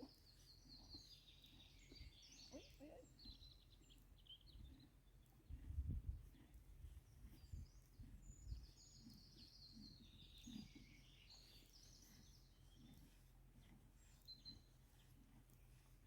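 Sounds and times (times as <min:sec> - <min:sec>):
bird chirping: 0:00.0 - 0:05.2, 0:07.2 - 0:13.2, 0:14.0 - 0:15.2.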